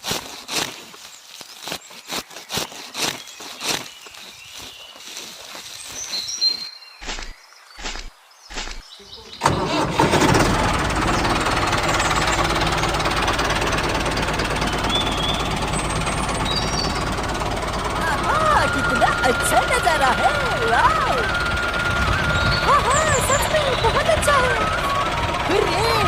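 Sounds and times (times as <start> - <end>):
tractor engine cranking: 9.4 - 26.0
tractor engine running: 9.4 - 26.0.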